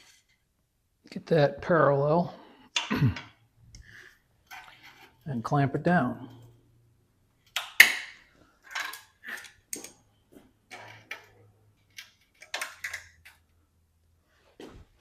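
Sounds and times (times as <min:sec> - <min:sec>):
clamps clicking and knocking: 0:07.4 - 0:10.0, 0:10.7 - 0:13.6.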